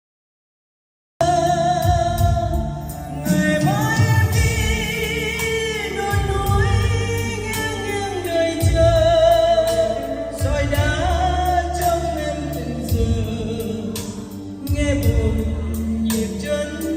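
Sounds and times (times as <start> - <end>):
person singing: 1.2 - 16.9
steady bass beat: 1.2 - 16.9.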